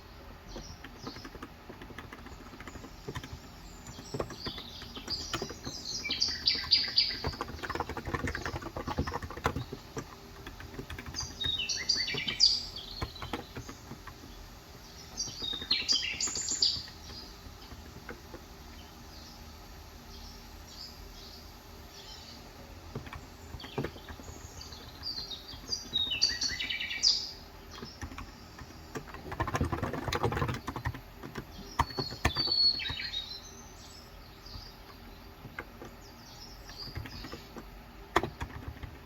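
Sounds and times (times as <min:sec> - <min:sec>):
birds chirping: 0:00.0 - 0:39.0
keyboard typing clicks: 0:00.5 - 0:14.4, 0:27.7 - 0:33.2.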